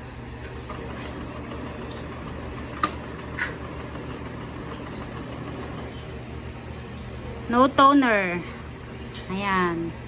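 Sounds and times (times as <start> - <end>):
copier humming: 0.0 - 9.2.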